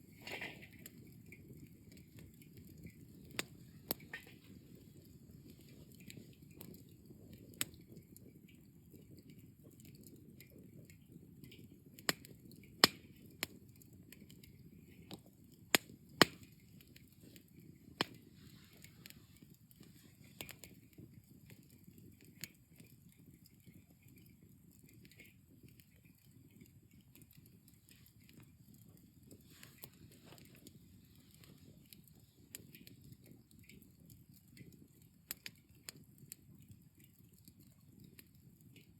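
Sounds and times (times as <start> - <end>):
low steady fire noise: 0.0 - 38.9
campfire crackling pops: 0.1 - 8.3, 11.4 - 21.7, 35.3 - 36.4.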